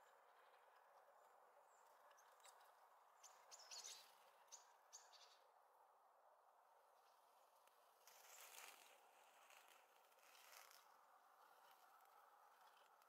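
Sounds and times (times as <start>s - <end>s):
small birds chirping: 1.6s - 5.5s.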